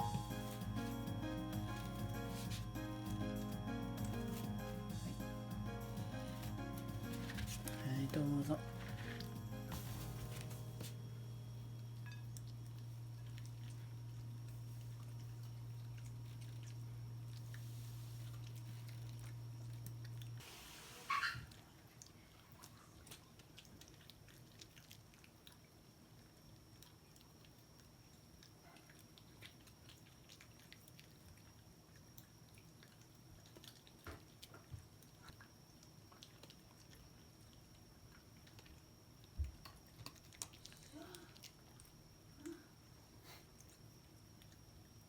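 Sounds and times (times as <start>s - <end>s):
dog chewing food: 12.3s - 20.4s, 21.8s - 38.9s.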